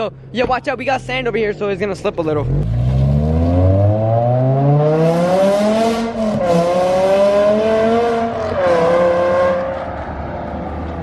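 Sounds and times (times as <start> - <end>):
car engine accelerating: 2.2 - 11.0.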